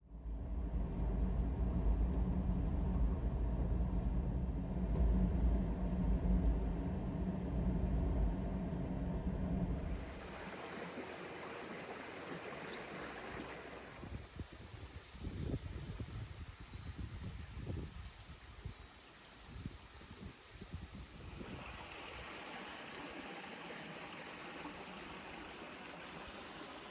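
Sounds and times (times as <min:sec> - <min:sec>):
even hiss: 0:09.9 - 0:26.9.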